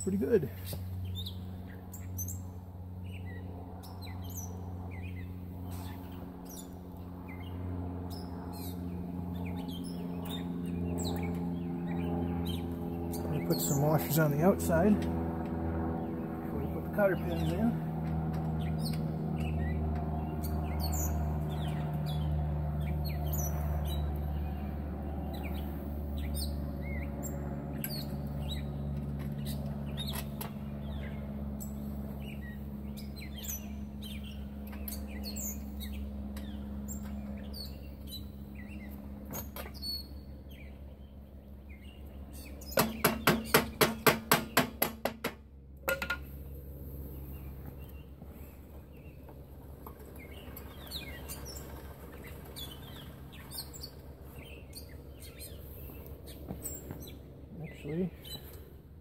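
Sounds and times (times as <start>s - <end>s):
small birds chirping: 0.0s - 44.9s, 46.2s - 58.8s.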